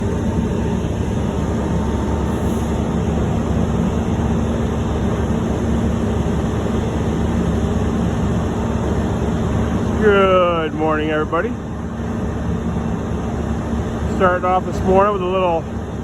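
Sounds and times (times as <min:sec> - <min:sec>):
diesel truck engine droning: 0:00.0 - 0:16.0.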